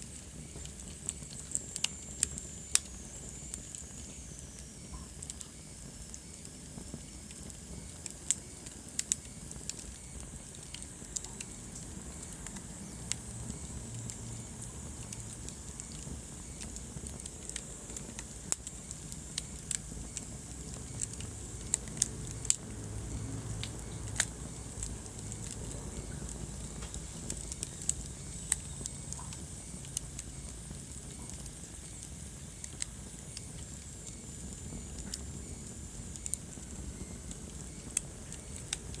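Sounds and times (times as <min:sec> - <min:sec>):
fire crackling and popping: 0:00.0 - 0:39.0
low roar of flames: 0:00.0 - 0:39.0.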